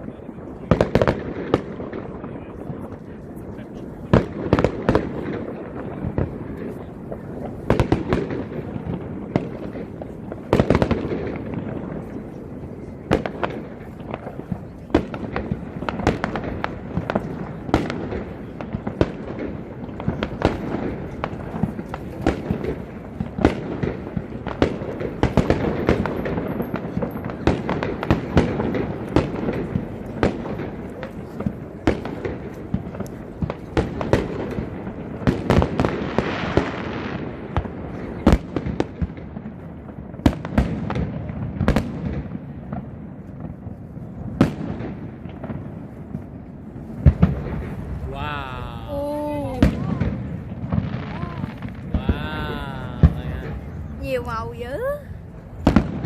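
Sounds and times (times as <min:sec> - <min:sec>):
sharp bangs and crackles: 0:00.1 - 0:48.1, 0:49.4 - 0:56.0
steady low rumble: 0:45.9 - 0:56.0.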